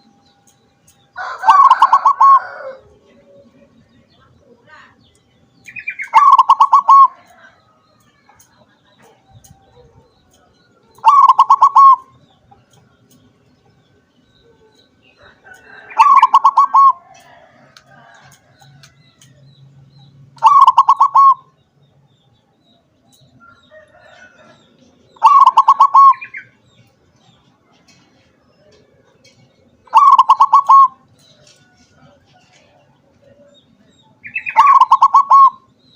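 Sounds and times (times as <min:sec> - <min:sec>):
dove cooing: 0:01.2 - 0:03.6, 0:05.9 - 0:07.4, 0:10.9 - 0:12.2, 0:14.5 - 0:18.2, 0:20.4 - 0:21.5, 0:25.2 - 0:26.5, 0:29.8 - 0:31.0, 0:34.2 - 0:35.7.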